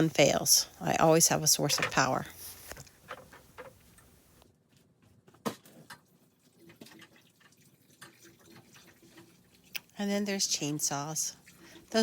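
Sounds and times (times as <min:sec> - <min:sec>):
faint clicks and taps: 0:02.6 - 0:04.1.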